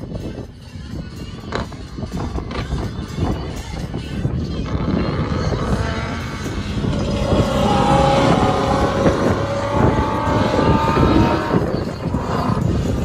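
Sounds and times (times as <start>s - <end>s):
car engine at high revs: 4.6s - 13.0s.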